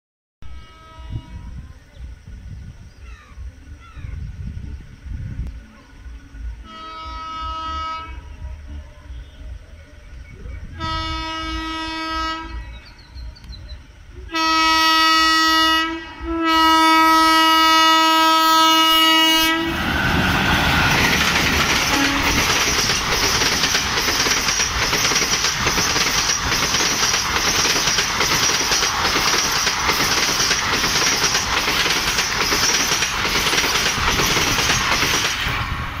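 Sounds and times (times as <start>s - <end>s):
locomotive air horn blasts: 0.4s - 1.6s, 6.6s - 8.5s, 10.8s - 12.8s, 14.2s - 19.8s, 21.8s - 22.6s.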